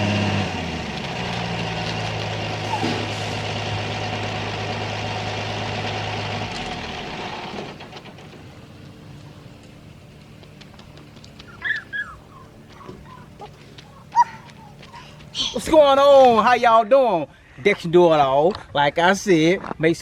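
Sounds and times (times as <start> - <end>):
vehicle engine running: 0.0 - 16.5
bird chirping: 10.8 - 15.7.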